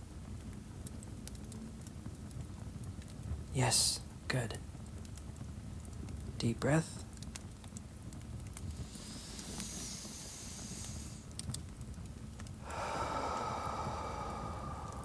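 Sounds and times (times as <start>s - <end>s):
fireplace crackling: 0.0s - 15.0s
person breathing in deeply: 8.7s - 11.3s, 12.6s - 15.0s
person exhaling: 12.6s - 15.0s.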